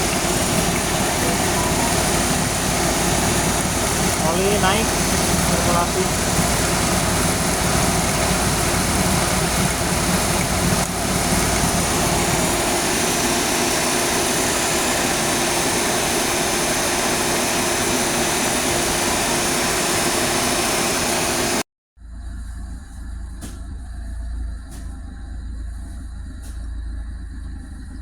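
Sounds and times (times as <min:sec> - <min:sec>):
radiator fan whooshing: 0:00.0 - 0:21.6
car engine idling: 0:00.0 - 0:28.0.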